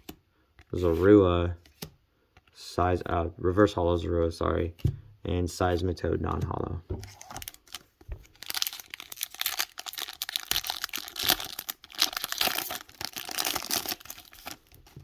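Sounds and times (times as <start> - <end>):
foil wrapper crinkling: 7.1 - 15.0.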